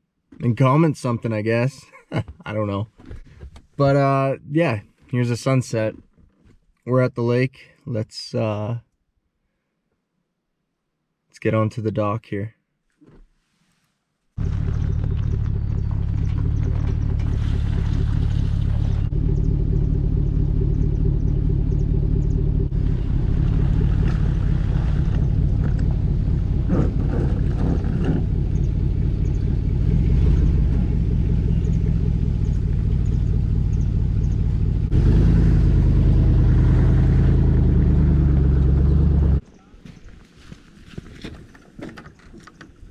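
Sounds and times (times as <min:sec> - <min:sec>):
boat motor running: 0:14.4 - 0:35.2.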